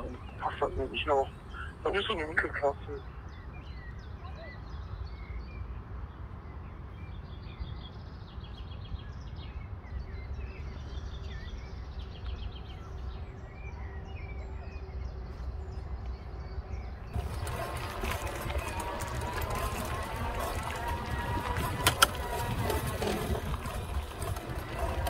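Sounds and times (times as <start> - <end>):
songbirds chirping and trilling: 0.0 - 25.0
steady low rumble: 10.3 - 25.0.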